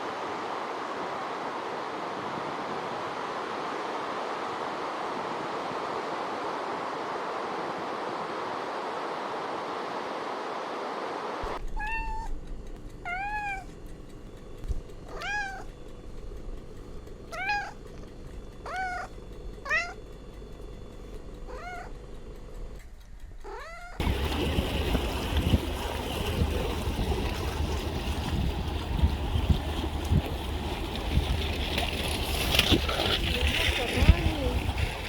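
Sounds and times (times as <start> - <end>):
steady rushing noise: 0.0 - 11.6
animal mewing calls: 17.3 - 17.8, 18.6 - 20.0, 21.5 - 22.0.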